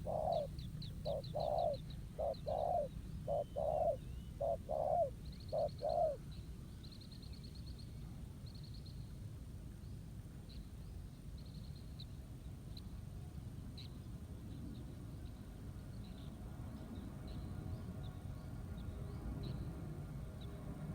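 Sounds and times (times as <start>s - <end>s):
dove cooing: 0.0s - 6.2s
low background rumble: 0.0s - 6.2s
small bird trills and chirps: 0.0s - 9.0s.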